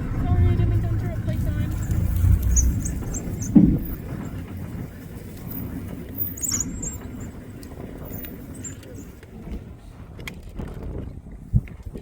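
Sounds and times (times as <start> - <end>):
vehicle engine running low: 0.0 - 11.6
faint high chirps: 1.7 - 3.6, 6.2 - 9.1.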